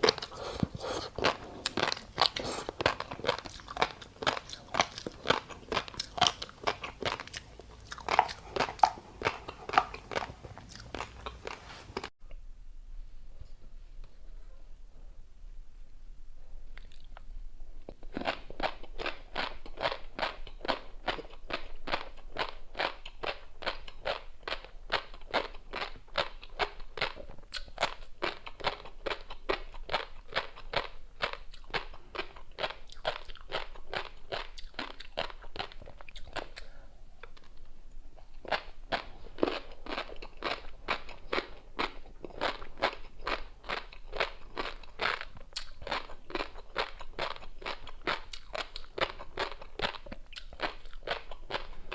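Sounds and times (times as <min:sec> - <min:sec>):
crunchy chewing: 0:00.0 - 0:12.1, 0:17.9 - 0:37.6, 0:38.2 - 0:51.9.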